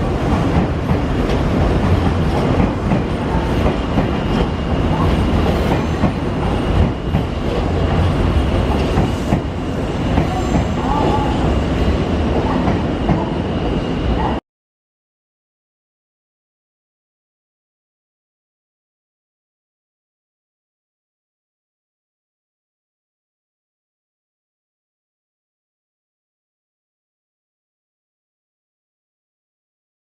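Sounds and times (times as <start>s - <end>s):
train wheels rumbling on rails: 0.0s - 14.4s.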